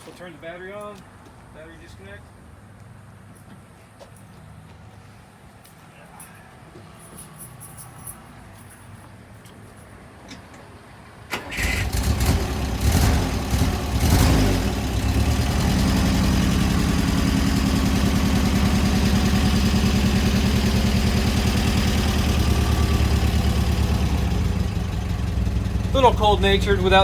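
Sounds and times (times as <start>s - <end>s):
engine cranking and starting: 11.3s - 27.0s
engine idling: 11.3s - 27.0s.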